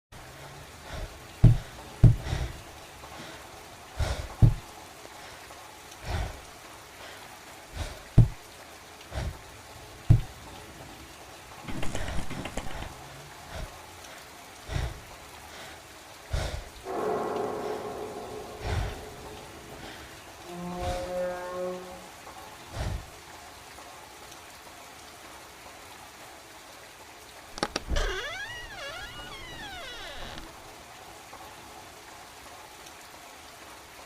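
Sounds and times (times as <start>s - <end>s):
rain-like hiss: 0.1s - 34.0s
dull heavy thuds: 1.4s - 2.5s, 4.0s - 4.7s, 8.1s - 8.4s, 10.1s - 10.4s.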